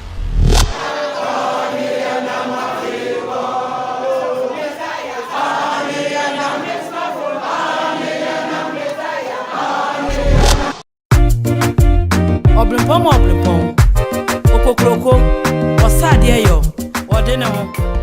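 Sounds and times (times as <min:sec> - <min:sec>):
choir singing: 0:00.7 - 0:10.8.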